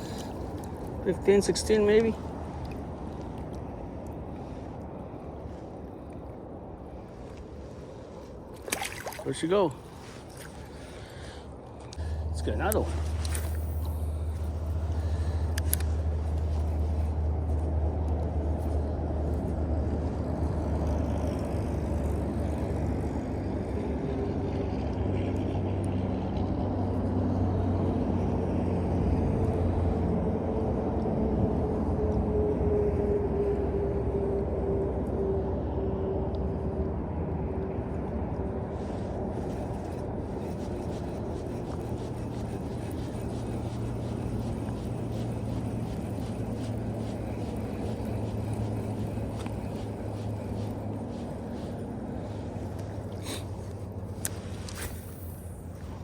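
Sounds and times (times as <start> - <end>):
faint drawn-out hum: 0.0 - 56.0
distant engine rumble: 9.3 - 31.0, 33.4 - 56.0.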